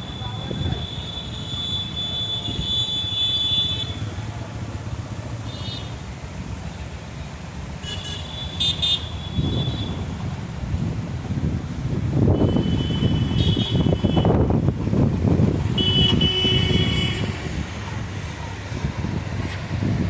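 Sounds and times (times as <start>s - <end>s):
wind buffeting microphone: 9.4s - 20.0s.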